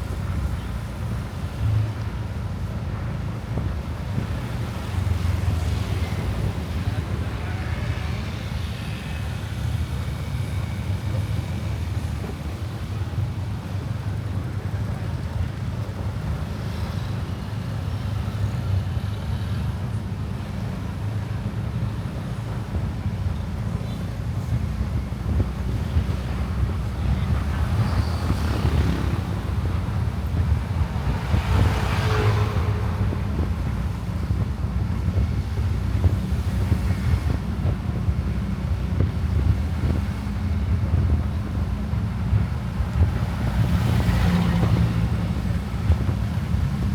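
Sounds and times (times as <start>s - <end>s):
wind on microphone: 19.9s - 46.9s.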